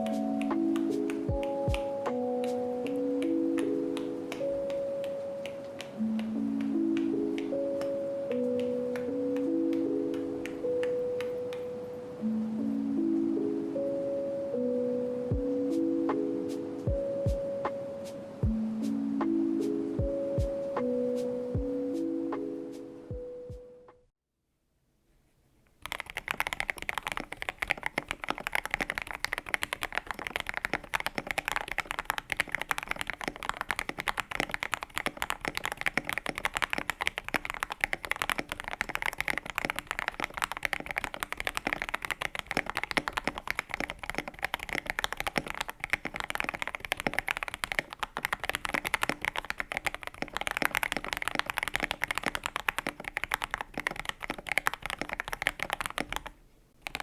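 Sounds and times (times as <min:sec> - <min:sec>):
fast mechanical keyboard typing: 0:25.8 - 0:57.0.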